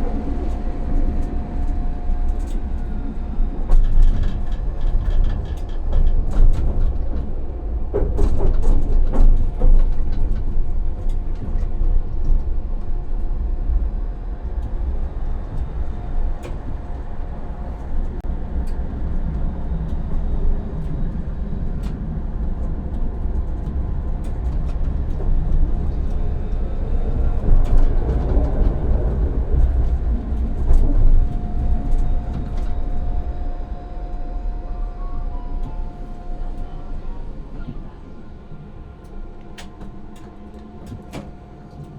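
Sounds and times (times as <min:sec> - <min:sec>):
track clicks and knocks: 0:00.0 - 0:12.4, 0:22.9 - 0:34.4, 0:35.6 - 0:41.9
tram rumbling on rails: 0:00.0 - 0:41.9
steady whine: 0:10.1 - 0:41.9.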